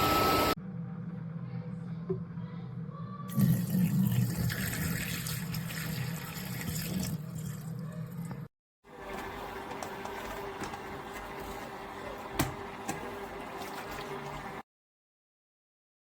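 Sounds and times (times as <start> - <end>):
wet-dry vacuum motor hum: 0.0 - 0.6.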